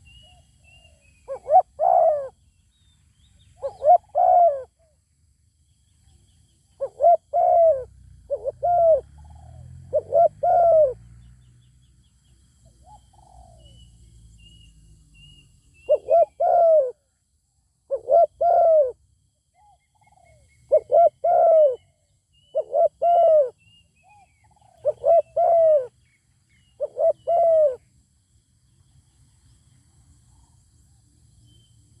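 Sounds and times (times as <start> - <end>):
dove cooing: 0.0 - 2.4, 3.6 - 4.8, 6.8 - 11.1, 12.8 - 13.8, 15.9 - 17.0, 17.9 - 19.0, 19.6 - 26.0, 26.8 - 27.9
faint high bird or insect calls: 0.0 - 32.0.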